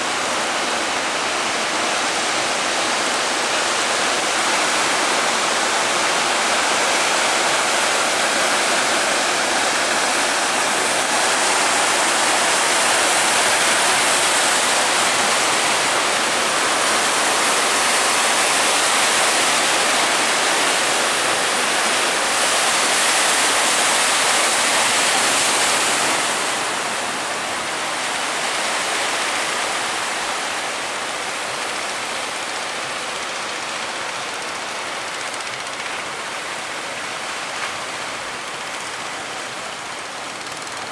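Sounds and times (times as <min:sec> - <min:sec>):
sea waves breaking: 0:00.0 - 0:40.9.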